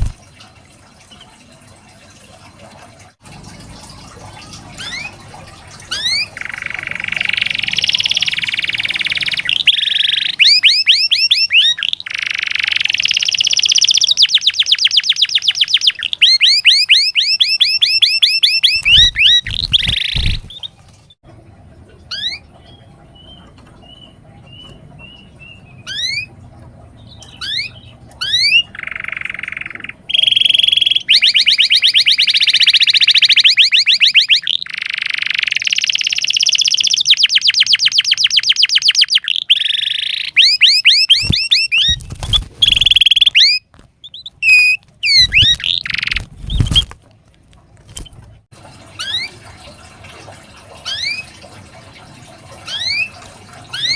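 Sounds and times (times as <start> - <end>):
canary trilling: 4.5 - 5.2, 5.8 - 20.8, 22.1 - 26.4, 27.0 - 46.9, 49.0 - 49.4, 50.8 - 51.3, 52.6 - 53.9.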